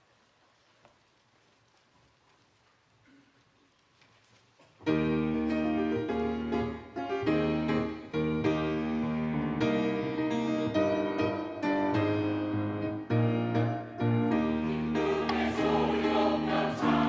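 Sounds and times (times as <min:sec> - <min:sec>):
piano playing sustained chords: 0:04.9 - 0:17.0.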